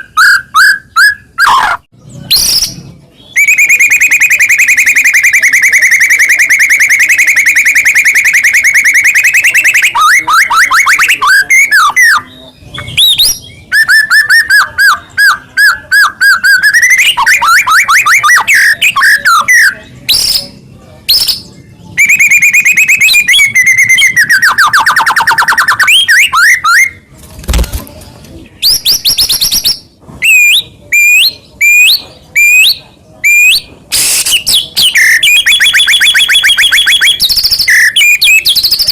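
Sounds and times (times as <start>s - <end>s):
songbird singing: 0.0s - 27.1s.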